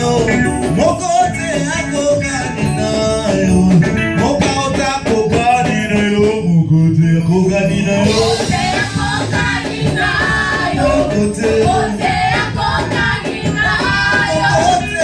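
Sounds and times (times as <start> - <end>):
steady beat: 7.6 - 15.0
choir singing gospel song: 7.8 - 15.0.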